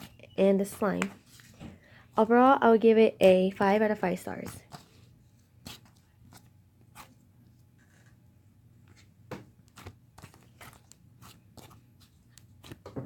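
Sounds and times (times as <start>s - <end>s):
soft clicks and crackles of handling: 12.0s - 12.8s.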